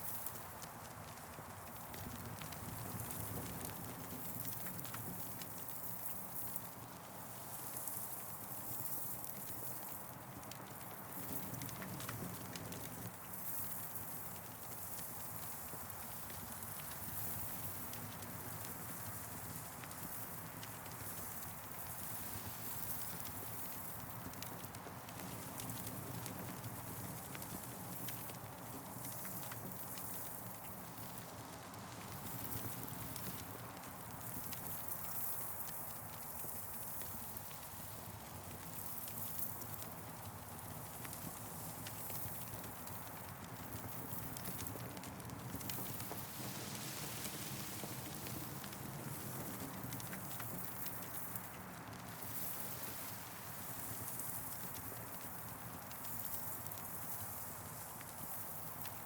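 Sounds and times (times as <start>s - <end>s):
campfire crackling: 10.2s - 59.0s.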